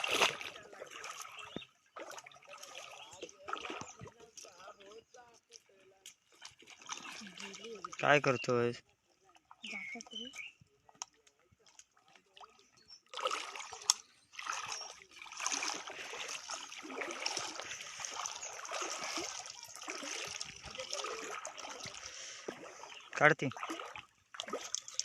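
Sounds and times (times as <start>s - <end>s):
water splashing and sloshing: 0.0s - 25.0s.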